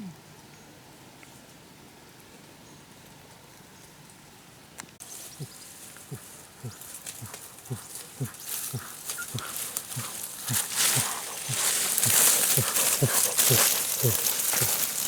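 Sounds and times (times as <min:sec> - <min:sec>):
animal making low calls: 0:05.2 - 0:15.0.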